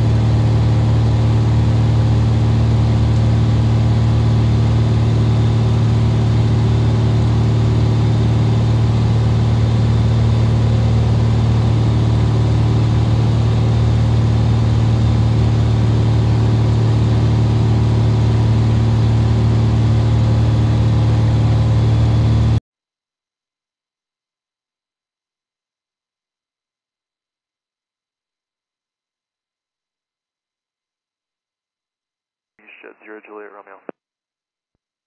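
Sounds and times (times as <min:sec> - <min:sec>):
propeller plane engine droning: 0:00.0 - 0:22.6.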